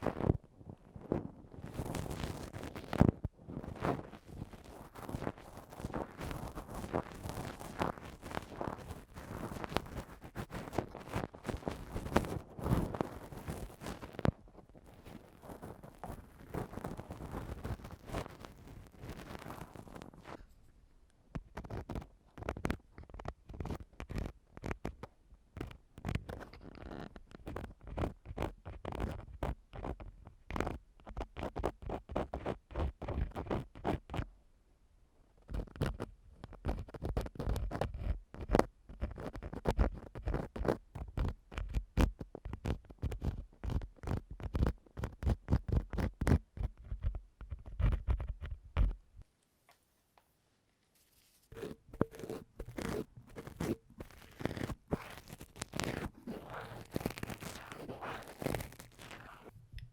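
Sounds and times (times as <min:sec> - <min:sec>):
tool scraping inside microphone ear: 0:51.0 - 0:59.6.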